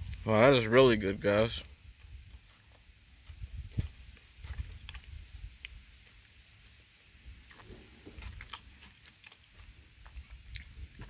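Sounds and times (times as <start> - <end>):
faint cricket chirping: 0.0 - 11.0.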